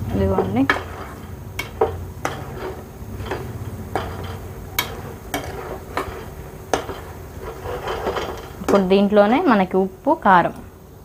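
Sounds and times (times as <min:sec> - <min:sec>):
spoon stirring food in a pan: 0:00.0 - 0:09.6
spoon knocking against pan: 0:00.3 - 0:07.1.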